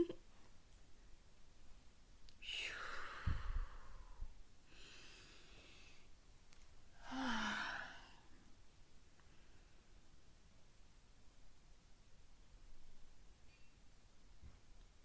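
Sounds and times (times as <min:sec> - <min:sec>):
person breathing audibly: 0:03.0 - 0:06.1, 0:07.0 - 0:08.4.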